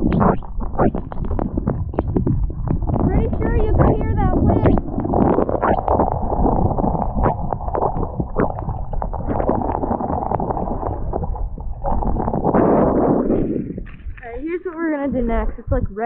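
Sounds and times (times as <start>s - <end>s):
wind blowing across microphone: 0.0s - 16.0s.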